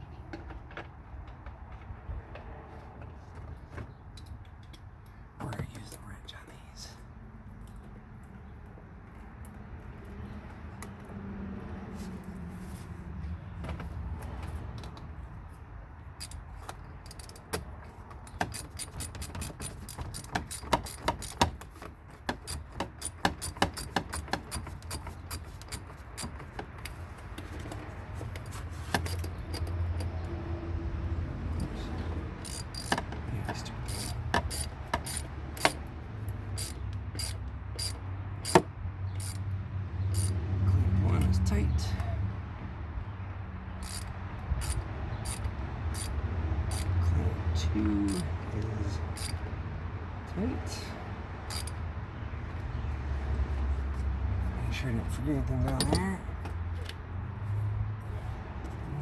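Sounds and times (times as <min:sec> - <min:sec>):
ratchet wrench clicking: 0:16.2 - 0:27.0, 0:28.4 - 0:30.4, 0:31.6 - 0:40.4, 0:43.8 - 0:47.0, 0:48.0 - 0:48.4, 0:49.1 - 0:49.5, 0:51.5 - 0:51.8, 0:55.7 - 0:56.2.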